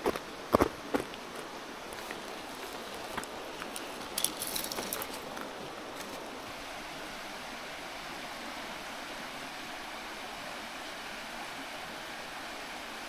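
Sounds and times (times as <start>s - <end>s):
mountain river murmuring: 0.0s - 13.0s
light clicks and clinks: 3.2s - 6.2s.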